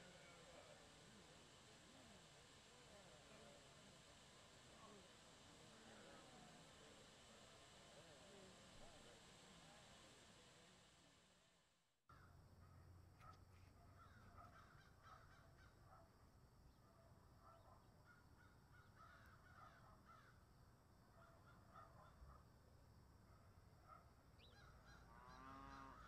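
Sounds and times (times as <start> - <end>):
low steady hum: 0.0 - 26.0
short bird calls chattering: 24.4 - 26.0.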